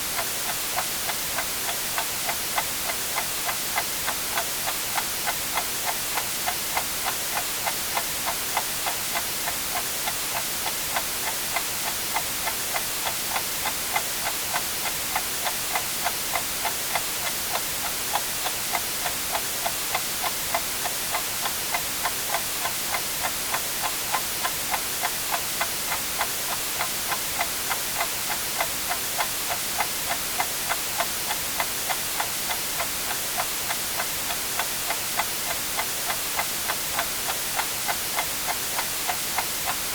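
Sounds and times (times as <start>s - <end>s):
white noise hiss: 0.0s - 39.9s
clock ticking: 6.7s - 39.9s.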